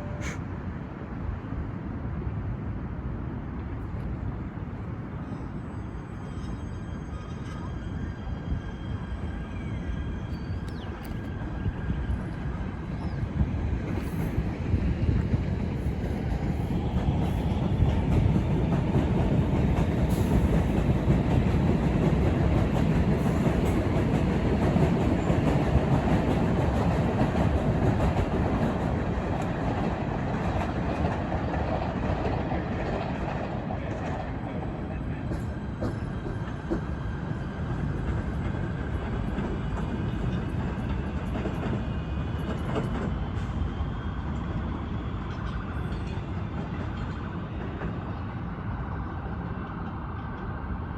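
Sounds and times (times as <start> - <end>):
train wheels clattering: 15.3 - 43.7.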